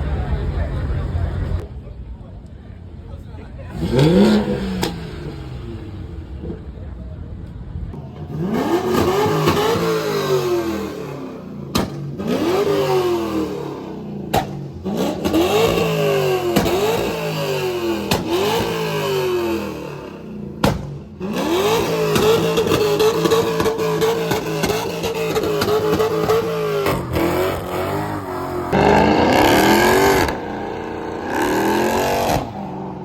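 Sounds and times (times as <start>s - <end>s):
car engine revving: 3.7s - 7.0s, 7.9s - 33.0s
sharp exhaust pops: 11.6s - 12.6s, 14.2s - 19.5s, 20.6s - 27.8s.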